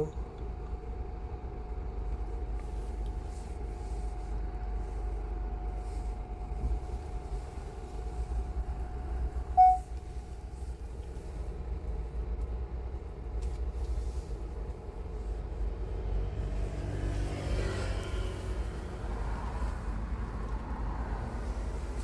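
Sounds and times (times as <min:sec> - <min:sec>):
car road and engine rumble: 0:00.0 - 0:22.0
short loud beep: 0:09.6 - 0:09.9.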